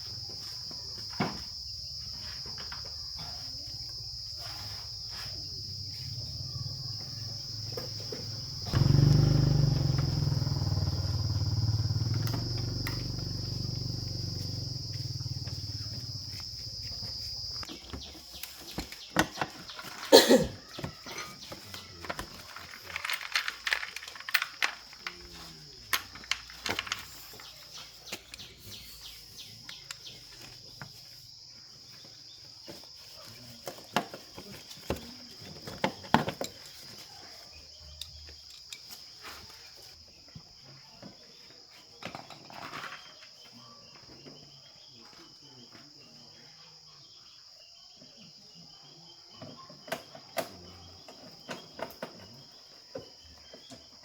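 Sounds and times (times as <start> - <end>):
insect chirring: 0.0 - 35.8.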